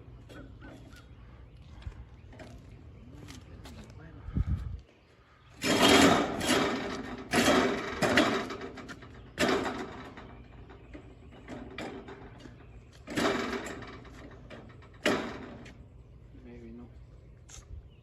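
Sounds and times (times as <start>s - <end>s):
loud clatters: 5.6s - 15.8s.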